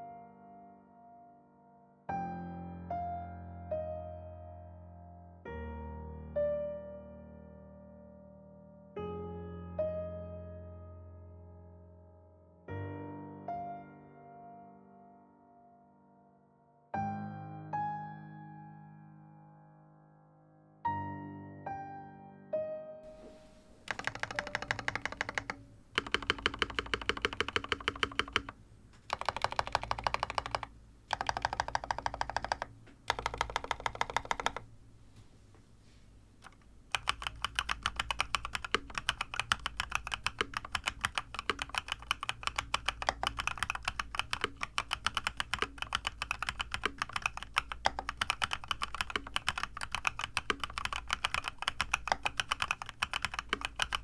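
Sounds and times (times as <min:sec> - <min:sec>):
mechanical keyboard typing: 0:23.8 - 0:34.7, 0:36.4 - 0:54.0.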